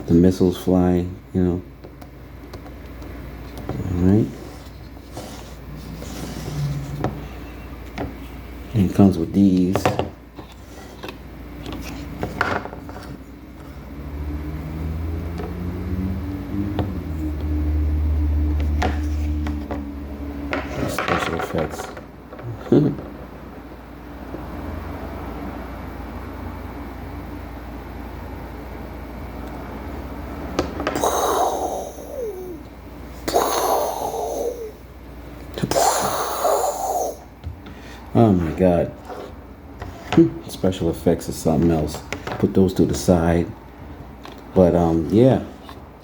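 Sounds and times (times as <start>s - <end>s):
steady low hum: 0.0s - 46.0s
vehicle engine rumbling: 3.7s - 8.8s.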